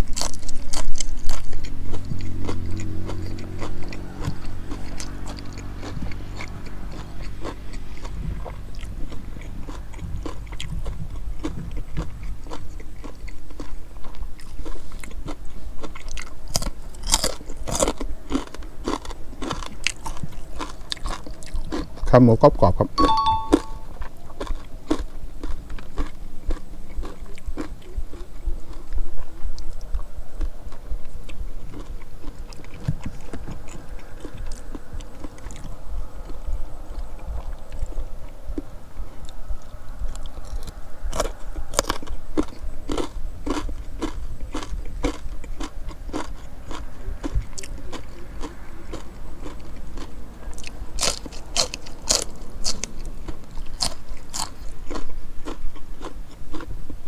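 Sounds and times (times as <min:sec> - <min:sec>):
steady chewing: 0:00.0 - 0:57.0
crisp crunches: 0:15.9 - 0:21.9, 0:48.9 - 0:53.1.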